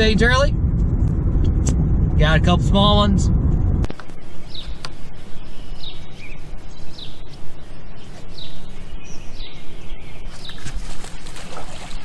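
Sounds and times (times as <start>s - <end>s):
steady low rumble: 0.0s - 12.0s
bird chirping: 4.1s - 11.1s.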